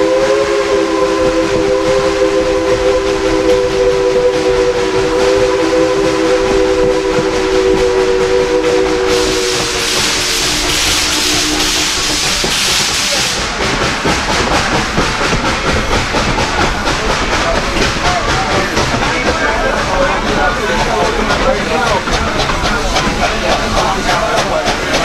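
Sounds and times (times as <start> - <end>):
steam locomotive chime whistle: 0.0 - 13.4
loud steam hiss: 0.0 - 25.0.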